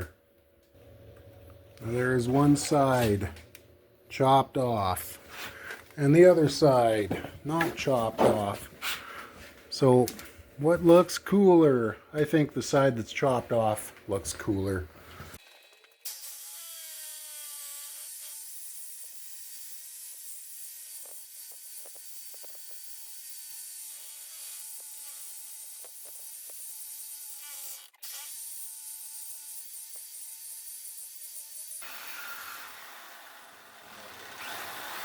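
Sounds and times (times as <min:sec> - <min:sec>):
electric saw motor whine: 0:31.8 - 0:35.0.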